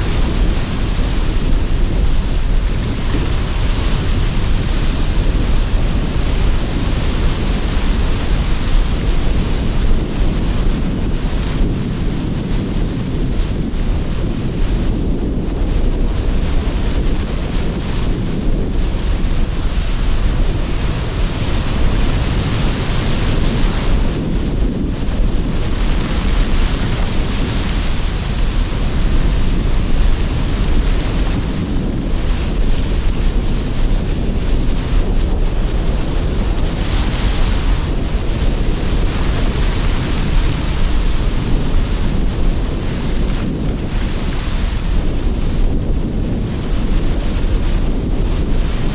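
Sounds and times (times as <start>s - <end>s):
surf breaking ashore: 0.0s - 48.9s
wind buffeting microphone: 0.0s - 48.9s.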